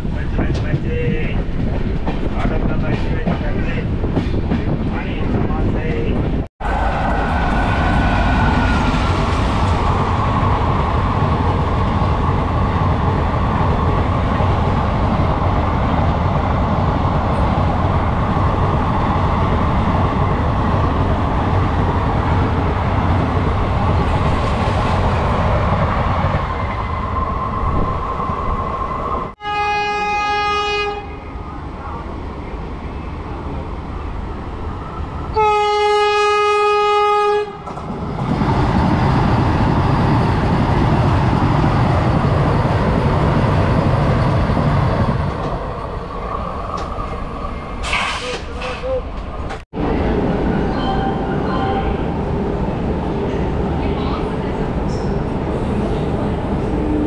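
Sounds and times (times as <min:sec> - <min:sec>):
train rumbling on rails: 0:00.0 - 0:57.0
train horn blast: 0:29.4 - 0:31.2, 0:35.3 - 0:37.6.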